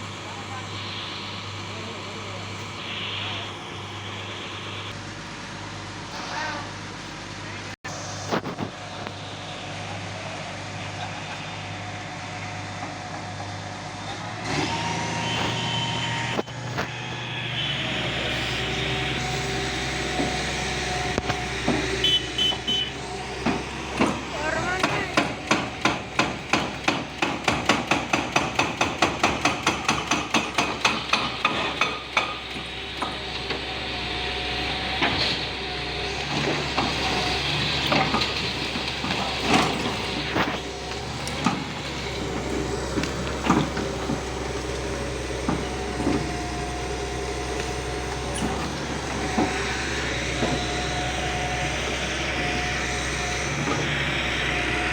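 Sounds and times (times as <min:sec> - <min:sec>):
demolition machine engine: 0:00.0 - 0:54.9
rapid hammering impacts: 0:23.4 - 0:32.6.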